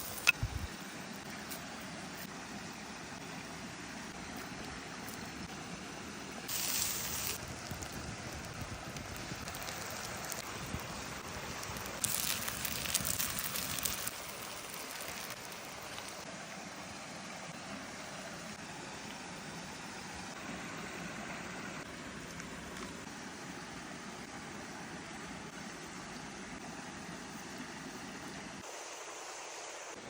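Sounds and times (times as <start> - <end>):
meatballs sizzling on hot stone: 6.5 - 10.4, 11.6 - 16.2.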